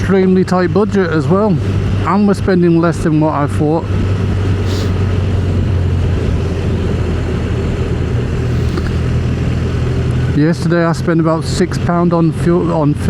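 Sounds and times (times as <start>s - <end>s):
motorcycle engine drone: 0.0s - 13.0s
wind noise: 3.0s - 10.3s.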